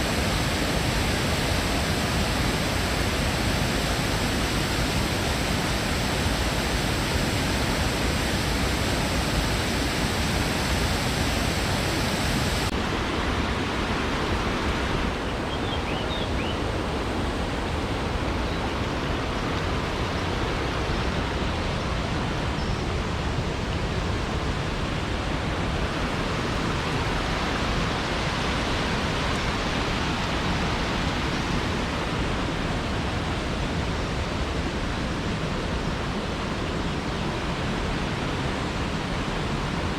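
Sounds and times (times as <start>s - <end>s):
waterfall rushing: 0.0s - 15.4s.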